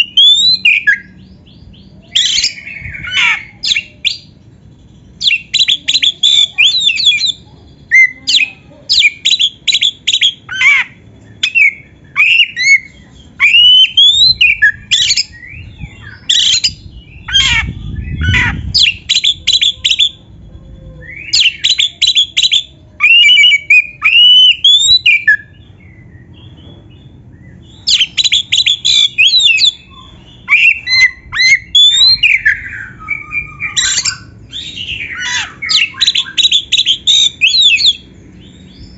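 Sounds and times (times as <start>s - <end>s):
bird singing chattering notes: 0.0s - 20.4s, 21.2s - 38.9s
low rumble: 14.5s - 21.3s.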